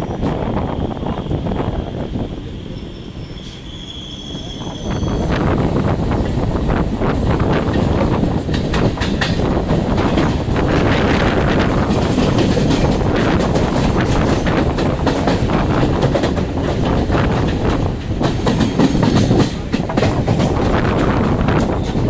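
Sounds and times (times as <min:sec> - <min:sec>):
train wheels rumbling on track: 0:00.0 - 0:22.0
wheels clacking over rail joints: 0:07.2 - 0:22.0.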